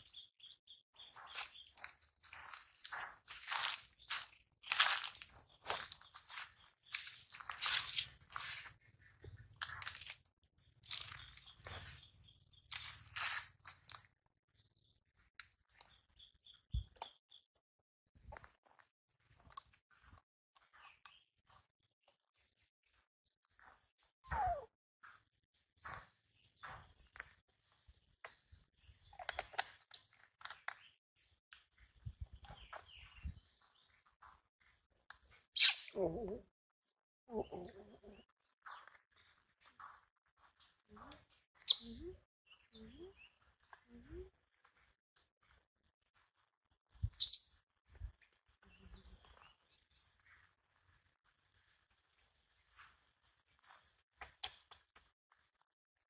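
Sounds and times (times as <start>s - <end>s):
crunchy food being chewed: 1.2s - 14.2s, 18.3s - 22.2s
monkey squeaking: 24.3s - 24.7s, 35.6s - 36.2s, 41.7s - 42.0s, 47.2s - 47.6s.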